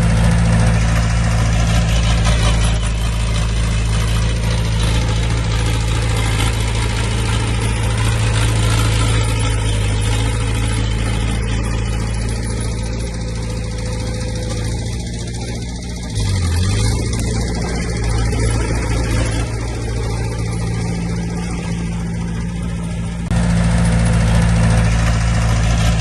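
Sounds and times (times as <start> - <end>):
heavy diesel engine humming: 0.0 - 26.0.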